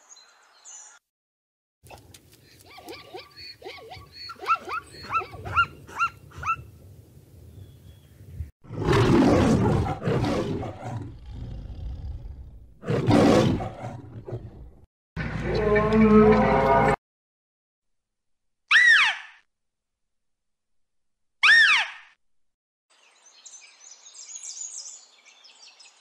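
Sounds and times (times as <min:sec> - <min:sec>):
lion roaring: 0:08.6 - 0:14.8.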